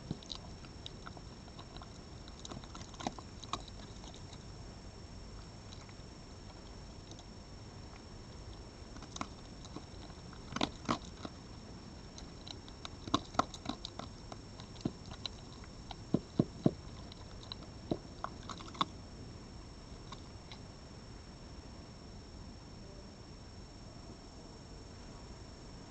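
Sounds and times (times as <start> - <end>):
animal crunching food: 0.0 - 4.6, 5.4 - 19.0, 19.8 - 20.6.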